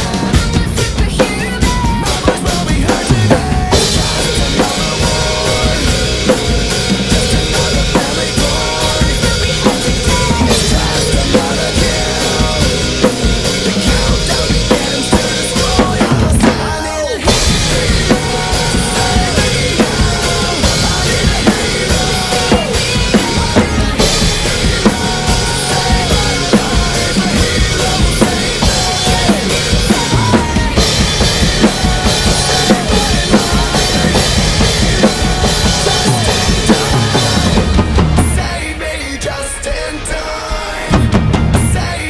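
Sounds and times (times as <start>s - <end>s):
recorded rock song: 0.0s - 42.0s
rock drum kit playing: 0.0s - 42.0s.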